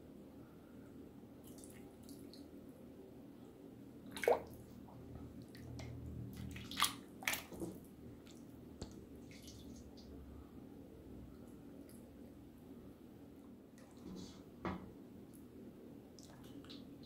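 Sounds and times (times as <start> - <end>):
soup sloshing and dripping: 1.4 - 2.5, 4.1 - 10.2.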